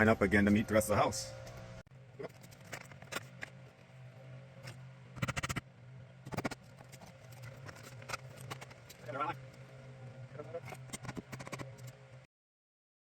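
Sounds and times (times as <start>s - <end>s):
faint steady hum: 0.0s - 12.3s
rapid clicks: 4.6s - 5.6s, 6.3s - 9.6s, 10.6s - 12.0s
vinyl siding scraping and clicking: 6.3s - 9.7s, 10.6s - 12.0s.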